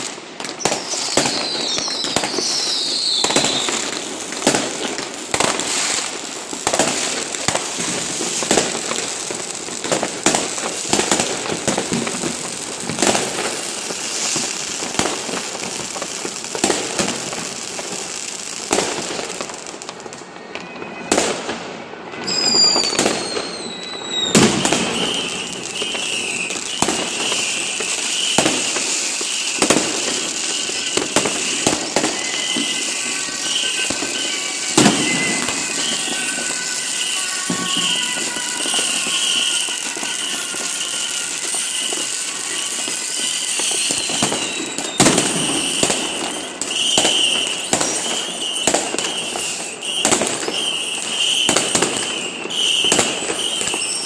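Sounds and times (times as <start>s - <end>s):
falling firework whistles: 0.0s - 54.0s
firecrackers crackling: 0.0s - 54.0s
firework bangs: 0.0s - 54.0s
high wavering whistle: 0.6s - 4.0s, 22.2s - 54.0s.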